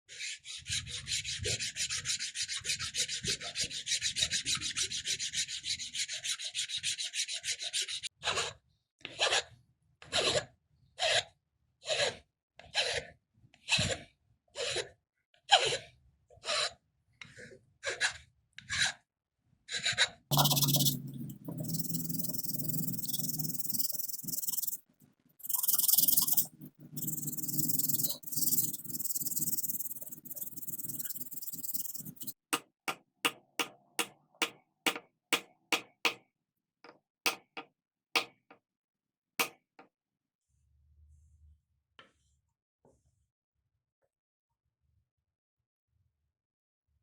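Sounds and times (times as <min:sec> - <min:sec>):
rasping on wood: 0:20.3 - 0:24.8, 0:25.4 - 0:32.4.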